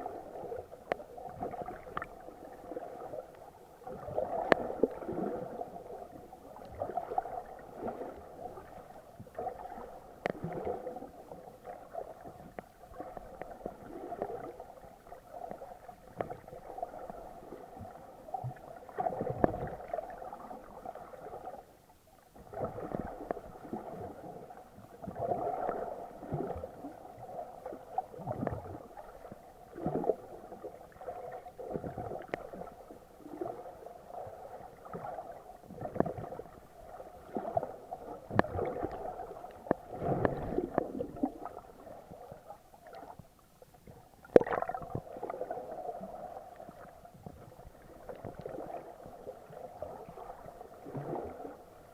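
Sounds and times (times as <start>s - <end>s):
muffled underwater water sloshing: 0.0s - 51.9s
water splash: 44.3s - 45.0s.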